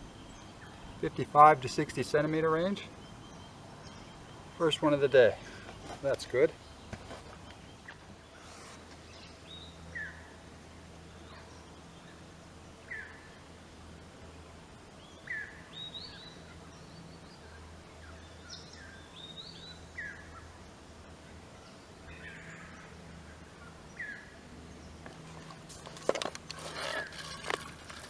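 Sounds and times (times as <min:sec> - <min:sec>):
wild birds chirping: 0:00.0 - 0:13.6, 0:14.3 - 0:28.0.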